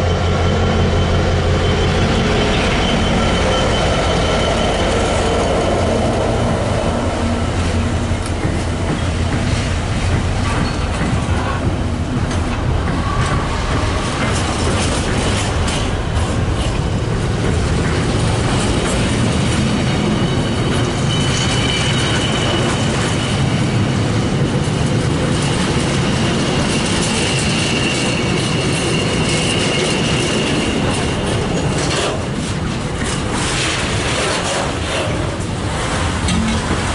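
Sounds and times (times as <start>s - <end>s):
faint high wheel squeal: 0.0s - 5.8s, 19.9s - 23.7s
freight train rumbling: 0.0s - 36.9s.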